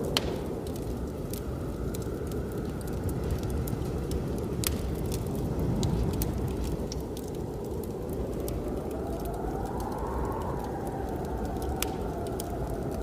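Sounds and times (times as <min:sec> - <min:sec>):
rushing blizzard wind: 0:00.0 - 0:13.0
wood fire crackling and popping: 0:00.0 - 0:13.0.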